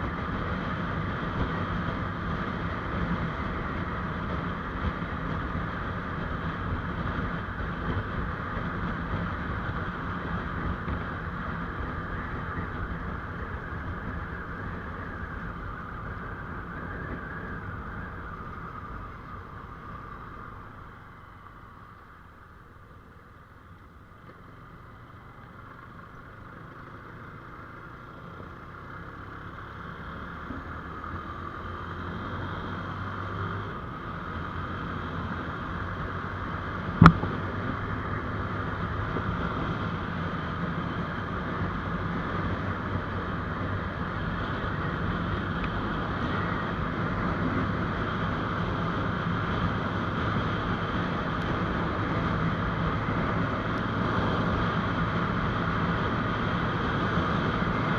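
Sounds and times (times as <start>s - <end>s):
motorcycle engine hum: 0.0s - 57.9s
wind and road noise: 0.0s - 57.9s
sharp click: 37.0s - 37.3s.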